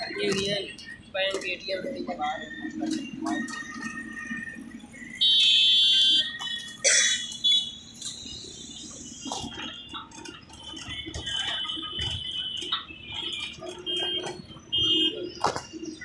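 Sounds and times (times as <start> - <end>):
road traffic rumble: 0.0 - 16.0
vehicle horn blasts: 5.2 - 7.8, 10.8 - 15.6.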